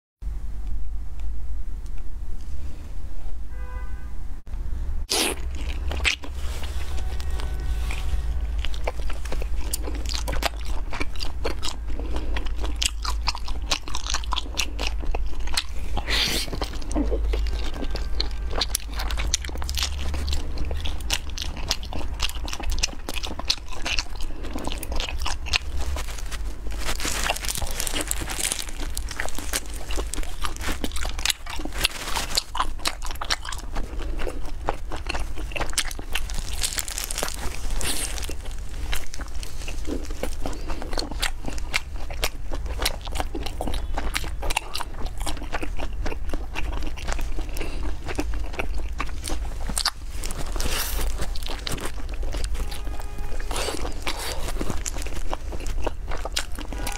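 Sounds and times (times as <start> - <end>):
low hum: 0.2 - 13.7
crunchy food chewing: 5.0 - 56.9.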